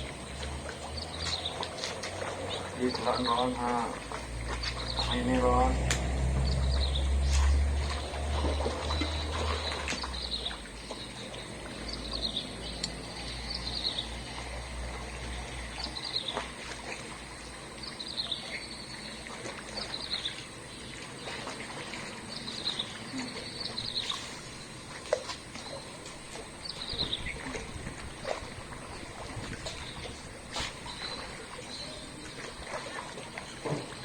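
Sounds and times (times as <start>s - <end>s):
bird chirping: 2.4s - 5.7s.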